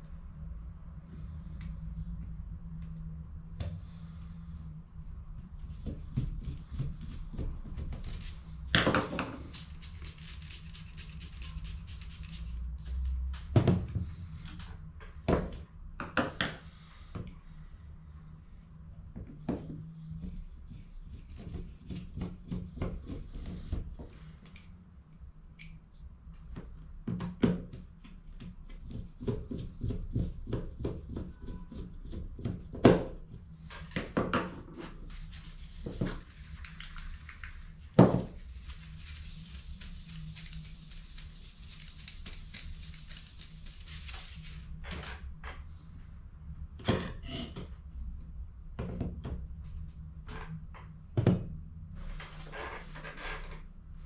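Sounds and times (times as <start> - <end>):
low hum: 0.0 - 7.2
steady hiss: 35.0 - 44.8.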